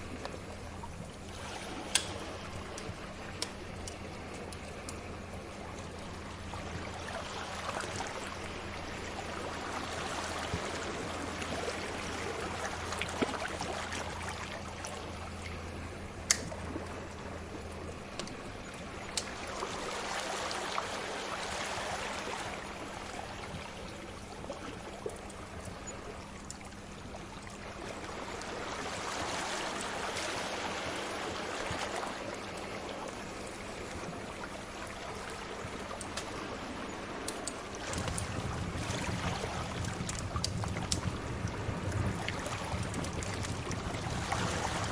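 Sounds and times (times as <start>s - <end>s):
sea waves washing in: 0.0s - 44.9s.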